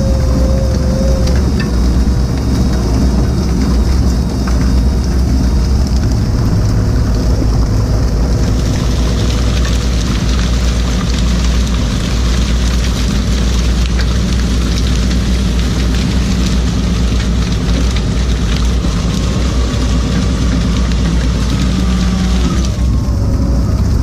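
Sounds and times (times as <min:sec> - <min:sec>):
water hissing: 0:00.0 - 0:12.6
boat engine humming: 0:00.0 - 0:24.0.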